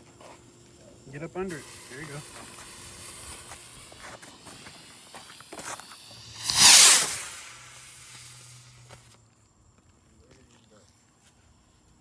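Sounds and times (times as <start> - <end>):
bottle rocket hissing whoosh: 1.5 - 9.1
faint crackles: 1.5 - 9.2.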